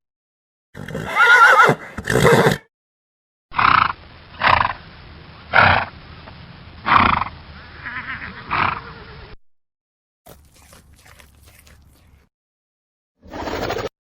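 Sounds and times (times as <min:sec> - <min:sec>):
animal calling in short cries: 0:07.6 - 0:09.0.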